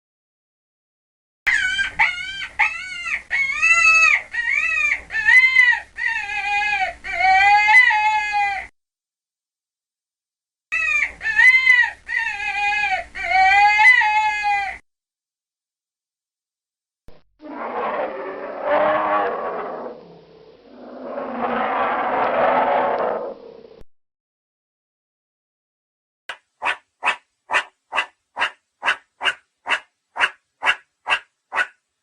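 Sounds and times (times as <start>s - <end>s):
chicken squawking: 1.5s - 6.6s, 26.6s - 31.8s.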